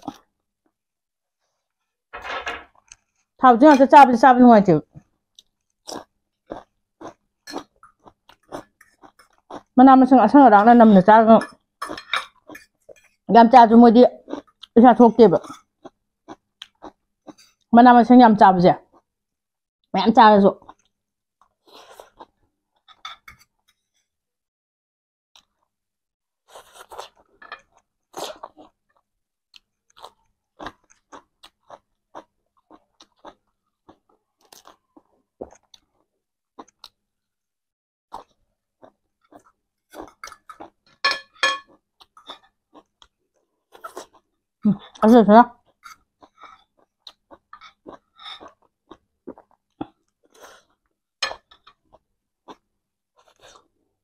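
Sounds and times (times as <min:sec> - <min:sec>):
crunching and chewing food: 0:05.0 - 0:09.8, 0:14.2 - 0:14.8, 0:15.4 - 0:17.7, 0:20.6 - 0:23.0, 0:25.4 - 0:25.7, 0:26.4 - 0:37.3, 0:38.1 - 0:54.0.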